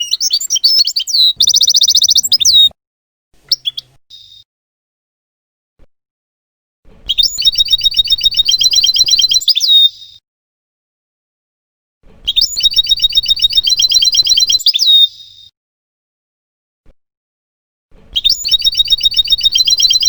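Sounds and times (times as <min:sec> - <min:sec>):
goldfinch trilling song: 0:00.0 - 0:02.7, 0:03.5 - 0:04.4, 0:07.1 - 0:10.2, 0:12.3 - 0:15.2, 0:18.2 - 0:20.0.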